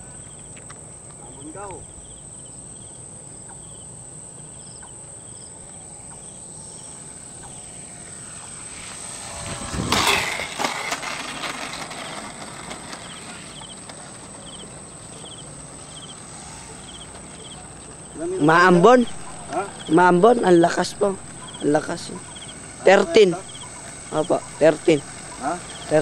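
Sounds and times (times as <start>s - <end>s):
crickets chirping: 0.0s - 26.0s
model plane motor whine: 5.3s - 26.0s.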